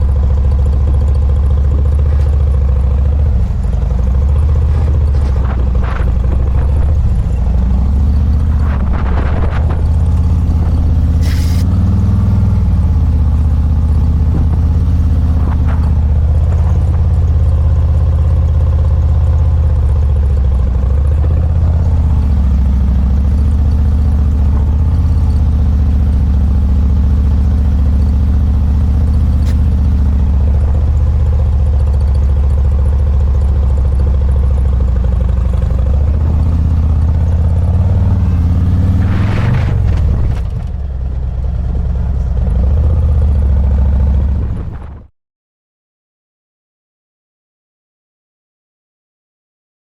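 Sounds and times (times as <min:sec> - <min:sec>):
motorcycle engine running: 0:00.0 - 0:45.1.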